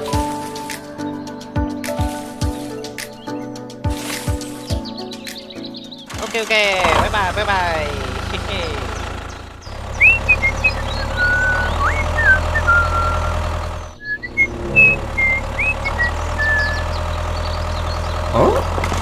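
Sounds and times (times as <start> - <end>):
birds chirping: 0.0 - 19.0
small engine humming: 6.1 - 19.0
short whistles: 10.0 - 16.8.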